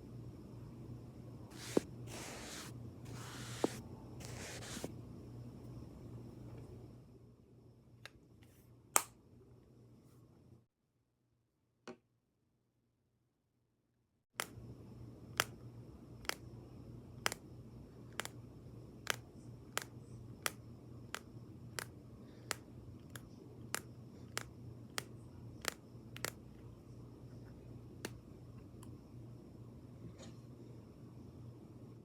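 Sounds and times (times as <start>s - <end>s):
steady low hum: 14.4s - 32.0s.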